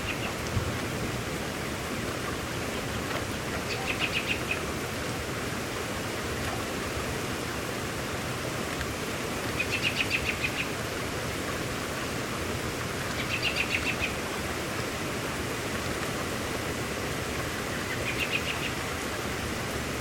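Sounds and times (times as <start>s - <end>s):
bird trilling: 0.0s - 0.4s
rain hiss: 0.0s - 20.0s.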